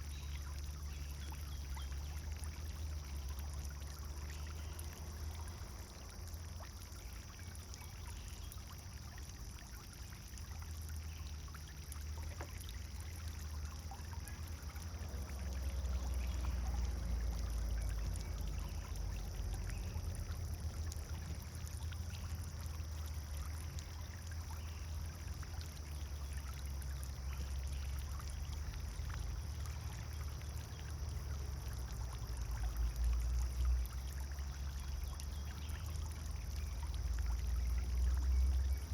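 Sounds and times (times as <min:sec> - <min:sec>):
fountain water splashing: 0:00.0 - 0:38.9.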